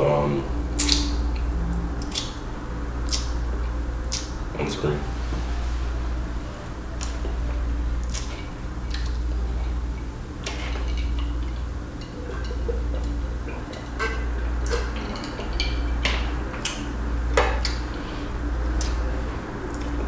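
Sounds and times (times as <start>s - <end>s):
low rumble: 0.0s - 20.0s
chewing with wet mouth clicks: 0.8s - 3.5s, 4.1s - 4.4s, 8.0s - 9.2s, 16.5s - 20.0s.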